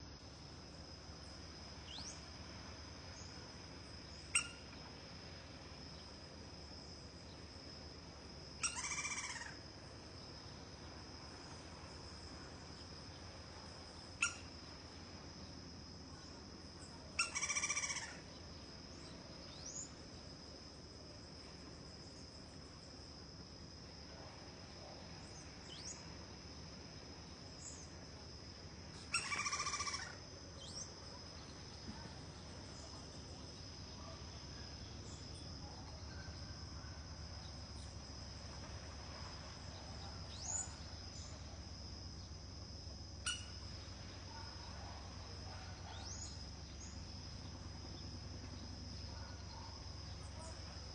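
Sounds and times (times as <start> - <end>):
high insect whine: 0.0 - 50.9
woodpecker harsh call: 4.3 - 4.6, 8.6 - 9.6, 17.2 - 18.2, 29.1 - 30.2.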